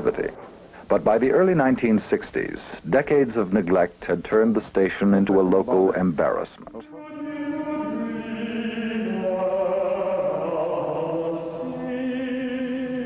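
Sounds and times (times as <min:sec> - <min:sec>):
voices singing chant-like notes: 0:06.8 - 0:13.0.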